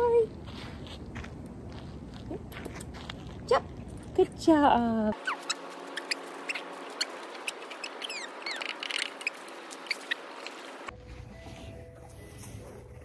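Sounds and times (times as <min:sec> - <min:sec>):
birds chirping: 0:05.2 - 0:10.9.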